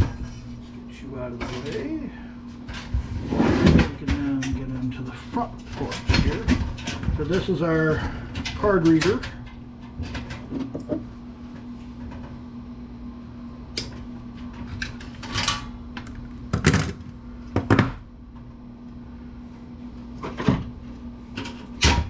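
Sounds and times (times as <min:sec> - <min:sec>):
steady low hum: 0:00.0 - 0:22.0
computer case parts clicking and knocking: 0:03.8 - 0:09.3, 0:16.5 - 0:18.0.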